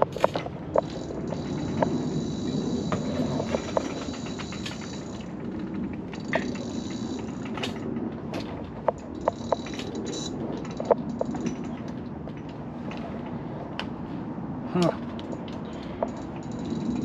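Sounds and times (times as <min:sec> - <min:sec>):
thin high whine: 0:00.0 - 0:08.0, 0:08.9 - 0:11.7
wheels clacking over deck boards: 0:00.0 - 0:13.4
scooter wheels rumbling on boardwalk: 0:00.0 - 0:17.0.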